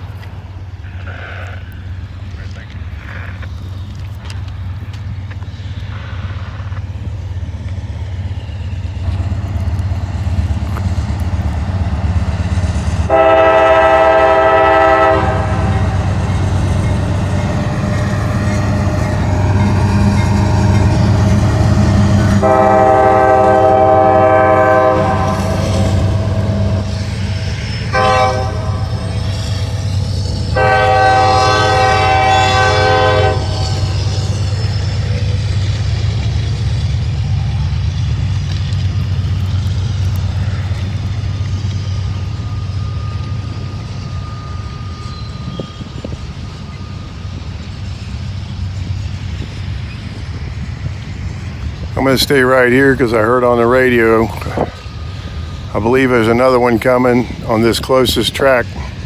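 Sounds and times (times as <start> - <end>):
locomotive low rumble: 0.0 - 59.0
train air horn blasts: 13.1 - 34.8.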